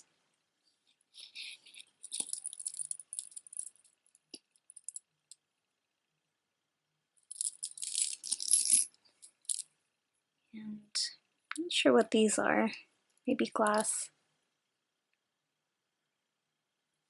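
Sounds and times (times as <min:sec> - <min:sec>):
beaded jewelry clinking: 0:01.1 - 0:05.4, 0:07.2 - 0:09.7.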